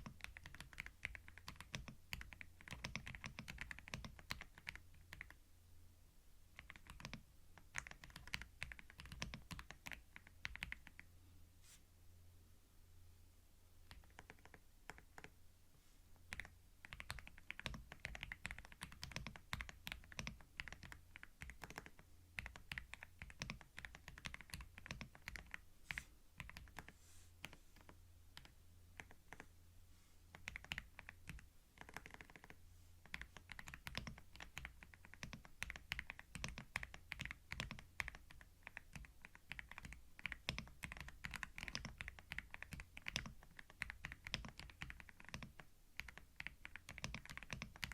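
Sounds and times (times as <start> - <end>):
keyboard typing clicks: 13.9 - 15.3, 16.3 - 25.6, 30.3 - 47.9.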